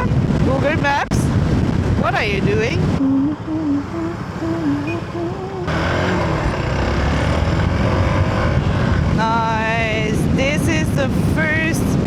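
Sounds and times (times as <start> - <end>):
wind noise on microphone: 0.0 - 12.0
motorcycle engine running: 5.6 - 10.2.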